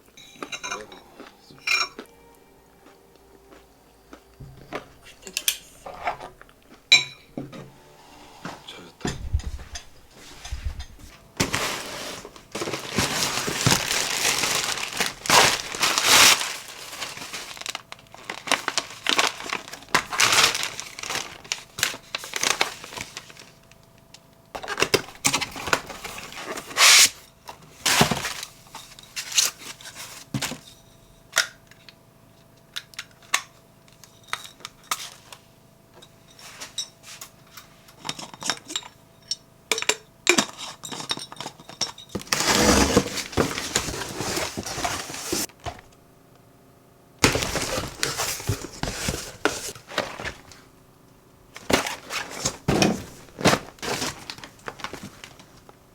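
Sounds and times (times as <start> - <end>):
packaging crinkling: 11.4 - 24.0, 42.2 - 45.9, 47.2 - 50.7, 51.5 - 55.8.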